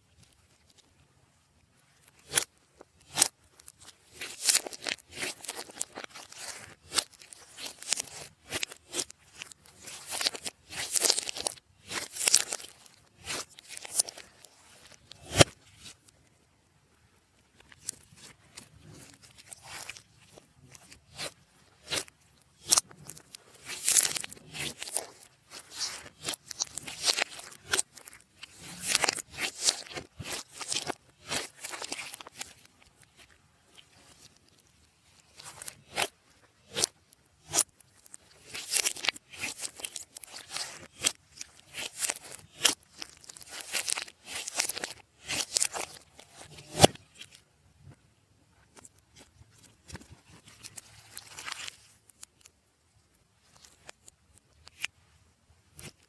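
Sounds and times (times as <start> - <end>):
slime squishing and crackling: 2.0 - 16.2, 17.5 - 47.4.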